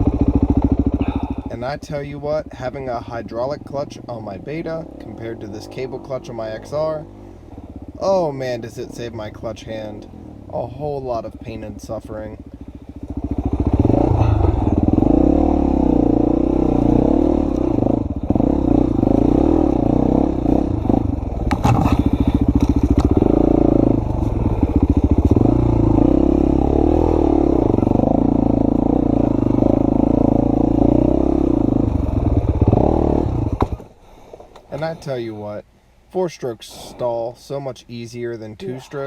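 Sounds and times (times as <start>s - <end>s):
dirt bike engine revving: 0.0s - 2.8s, 12.4s - 33.9s.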